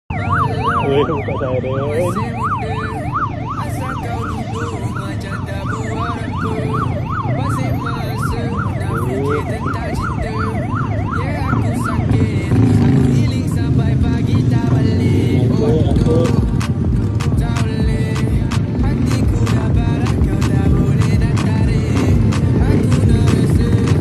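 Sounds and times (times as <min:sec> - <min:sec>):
police siren yelping: 0:00.1 - 0:17.2
low vehicle rumble: 0:02.1 - 0:24.0.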